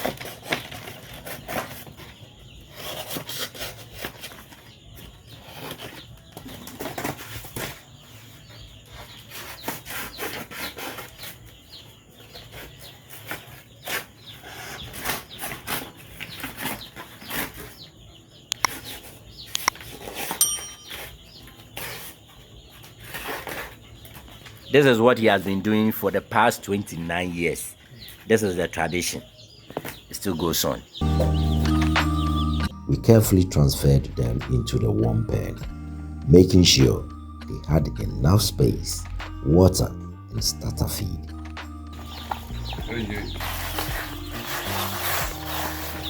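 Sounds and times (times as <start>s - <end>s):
cardboard rustling and crinkling: 42.0s - 46.0s.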